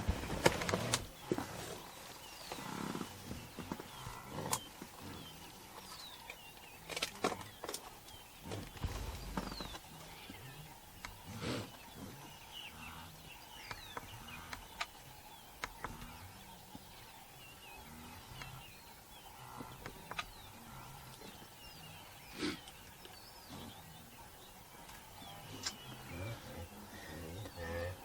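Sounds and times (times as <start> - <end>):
rustle: 0.0 - 28.0
small birds chirping: 0.0 - 28.0.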